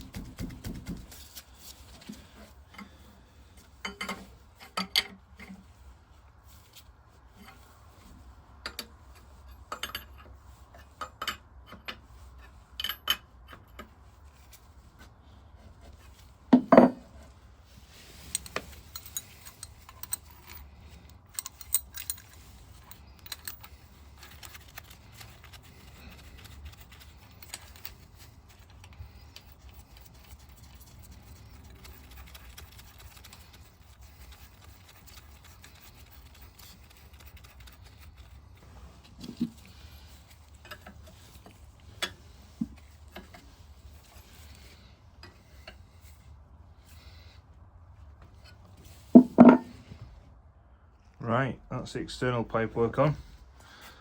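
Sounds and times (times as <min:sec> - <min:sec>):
metal tools clinking: 0:18.2 - 0:25.5.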